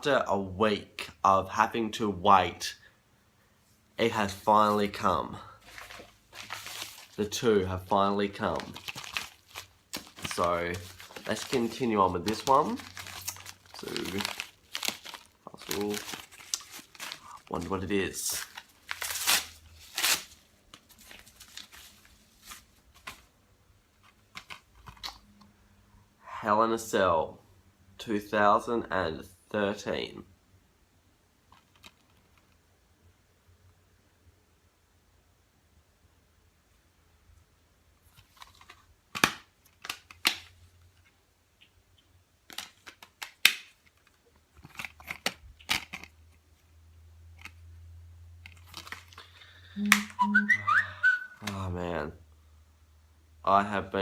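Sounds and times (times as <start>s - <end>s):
rustling and crinkling: 5.6s - 7.2s, 8.4s - 25.3s, 38.0s - 41.2s, 42.4s - 47.6s, 48.4s - 49.4s
packaging being torn open: 8.5s - 21.8s, 48.5s - 49.2s.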